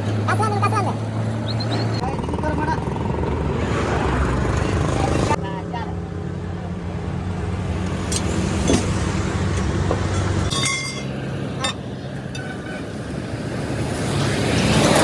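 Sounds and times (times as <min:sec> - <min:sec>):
metallic ringing tone: 0:10.5 - 0:12.9.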